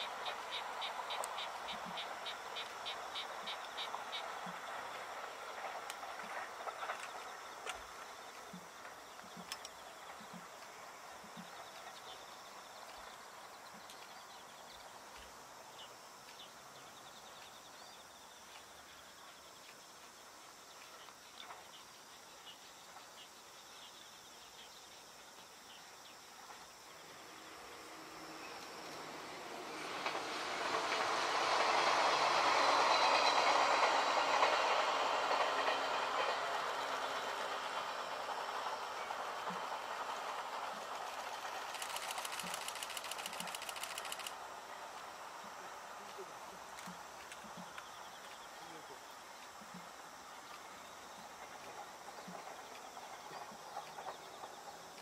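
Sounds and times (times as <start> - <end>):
approaching train rumble: 0.0 - 55.0
distant electric train running: 0.0 - 55.0
insects chirping: 0.0 - 55.0.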